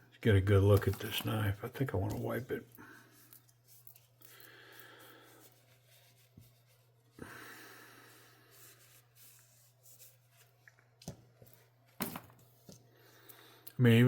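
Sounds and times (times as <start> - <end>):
cloth rubbing a knife: 5.2 - 7.2.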